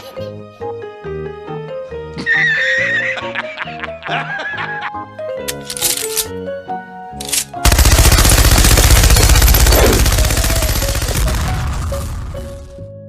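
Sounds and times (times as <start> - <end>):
machine-gun-like rapid bangs: 7.6 - 12.6.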